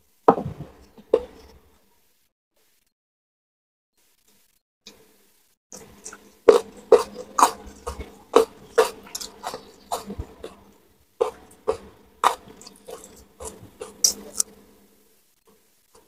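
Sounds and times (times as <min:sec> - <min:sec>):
crunching fried fish: 0:05.7 - 0:14.5
wet chewing: 0:05.7 - 0:14.6
lip smacks: 0:05.8 - 0:14.5.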